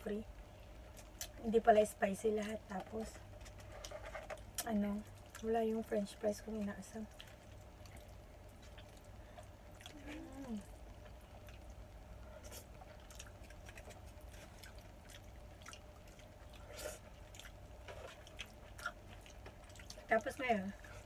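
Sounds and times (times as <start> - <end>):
low steady hum: 0.0 - 21.0
person humming: 9.9 - 10.7.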